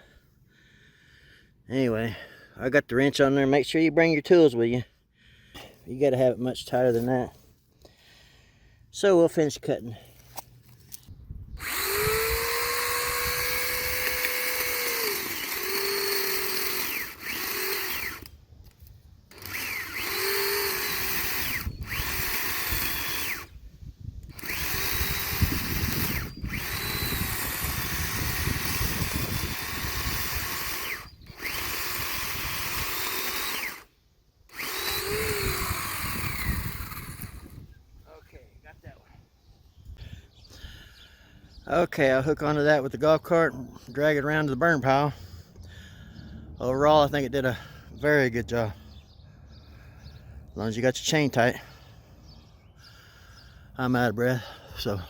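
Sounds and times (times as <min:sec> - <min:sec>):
electric chainsaw cutting wood: 0:11.6 - 0:23.6, 0:24.2 - 0:37.7.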